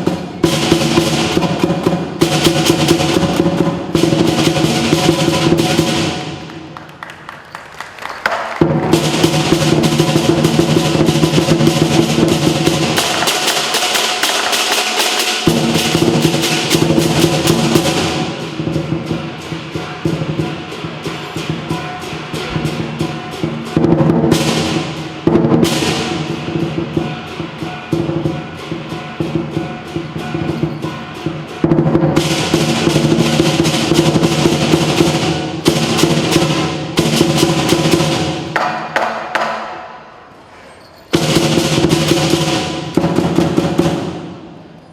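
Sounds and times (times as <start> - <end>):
cymbals clashing: 0.0 - 6.8, 8.5 - 44.9
large drum rolls: 0.0 - 7.4, 8.3 - 39.4, 41.2 - 44.5
gong ringing: 17.8 - 25.0.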